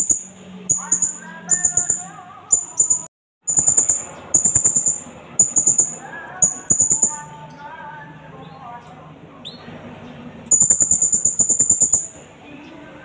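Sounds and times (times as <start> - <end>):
parrot high sharp chirps: 0.0 - 7.3, 10.5 - 12.2
faint loudspeaker voice: 0.6 - 3.0.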